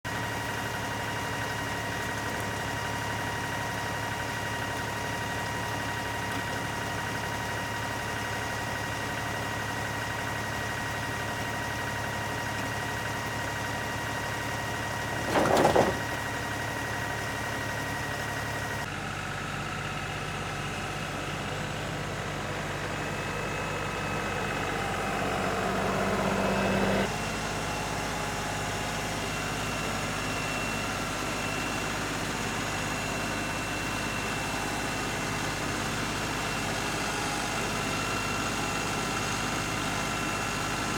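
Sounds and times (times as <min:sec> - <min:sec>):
engine running: 0:00.1 - 0:40.9.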